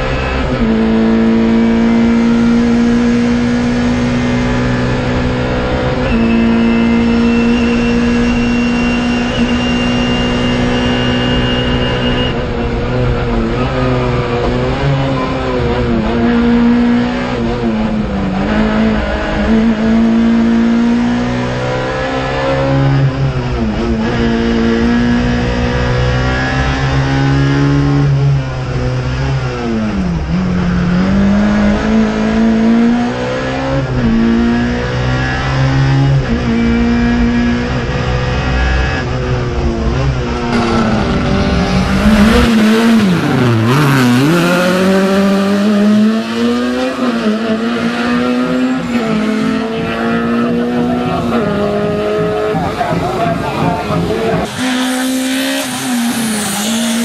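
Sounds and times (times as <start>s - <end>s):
car engine revving hard: 0.0s - 57.0s.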